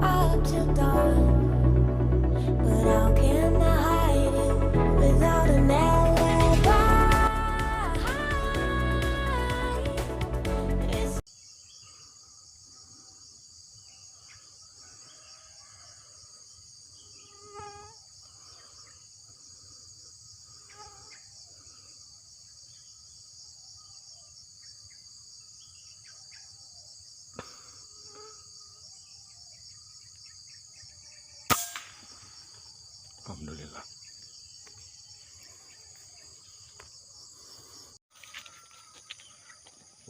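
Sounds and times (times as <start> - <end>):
crickets and insects chirping: 11.3 - 40.0
rifle shot: 31.5 - 32.2.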